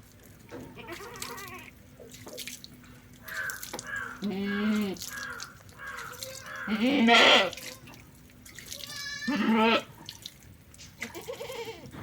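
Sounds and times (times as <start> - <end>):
goat bleating: 0.7 - 1.7, 4.0 - 7.6, 8.8 - 9.9, 11.0 - 11.9
liquid squirting into container: 1.0 - 6.7.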